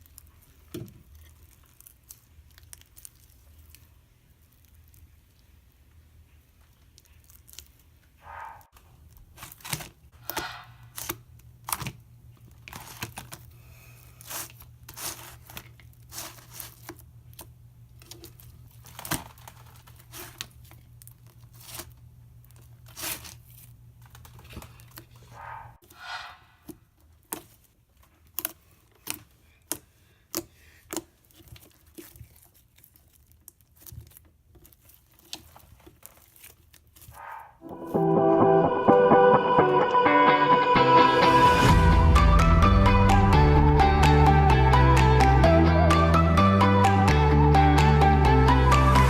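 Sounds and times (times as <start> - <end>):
slime squelching and popping: 0.0 - 5.9.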